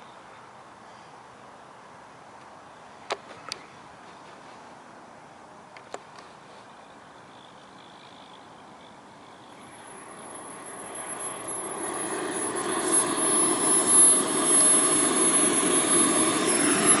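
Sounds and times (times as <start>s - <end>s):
model jet engine rushing: 6.0s - 17.0s
thin high whine: 6.3s - 17.0s.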